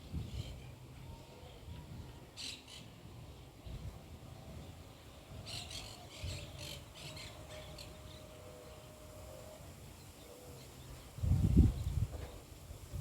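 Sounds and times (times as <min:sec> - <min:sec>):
bird chirping: 0:04.6 - 0:12.2.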